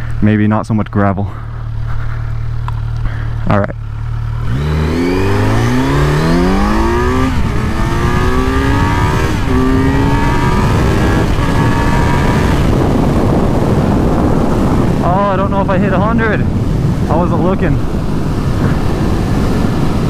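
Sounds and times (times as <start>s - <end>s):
motorcycle engine revving: 1.4s - 20.0s
wind rush at high speed: 4.4s - 20.0s.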